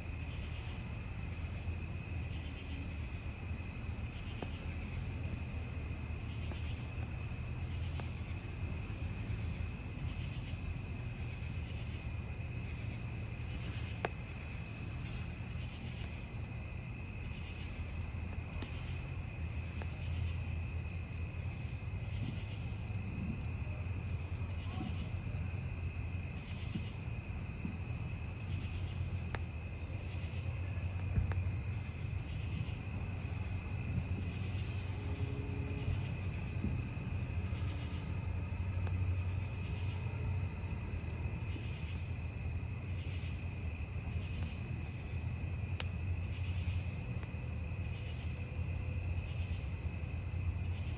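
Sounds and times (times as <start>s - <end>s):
burning logs crackling pops: 0.0s - 35.0s, 35.7s - 50.9s
campfire low rumble: 0.0s - 50.9s
crickets chirping: 0.0s - 50.9s.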